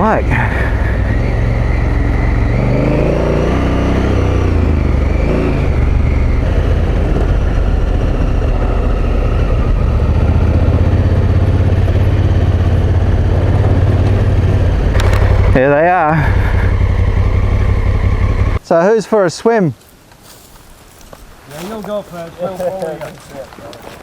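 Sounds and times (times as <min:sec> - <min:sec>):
motorcycle engine revving: 0:00.0 - 0:18.6.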